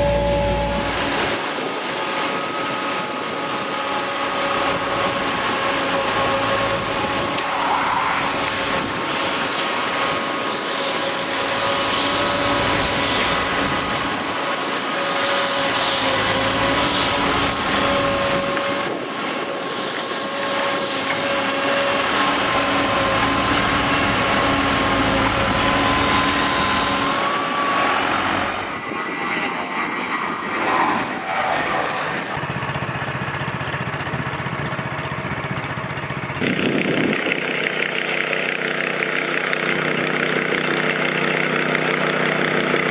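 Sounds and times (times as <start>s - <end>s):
heavy machinery running: 0.0s - 29.0s, 31.9s - 42.9s
high mechanical whine: 0.0s - 29.3s.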